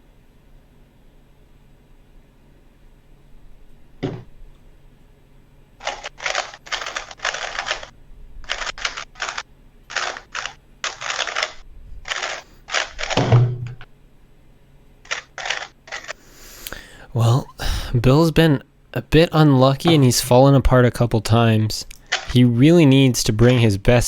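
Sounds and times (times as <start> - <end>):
heavy thump: 4.0 - 4.3
puzzle cube plastic clicking: 5.8 - 7.9, 8.5 - 13.2, 21.9 - 22.4.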